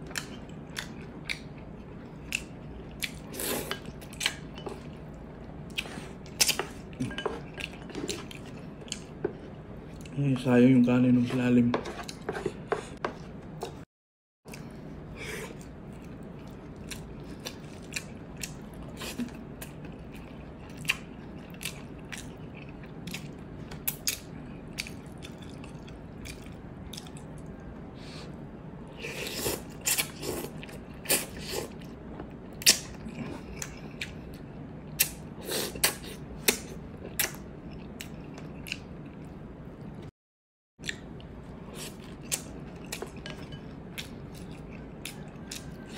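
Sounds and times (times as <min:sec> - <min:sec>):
steady low hum: 0:14.5 - 0:40.1.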